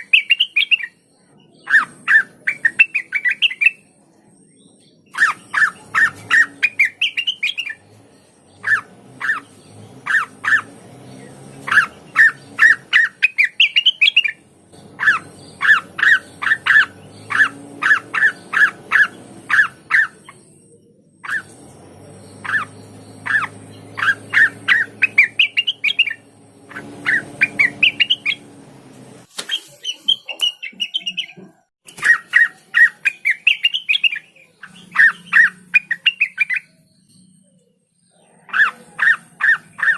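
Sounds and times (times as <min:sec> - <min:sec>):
bird singing chattering song: 0:00.0 - 0:39.9.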